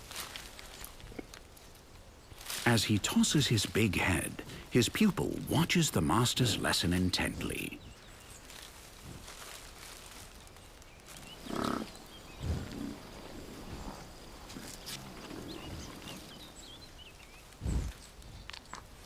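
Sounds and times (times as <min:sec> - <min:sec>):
bison grunting: 0:11.4 - 0:16.5.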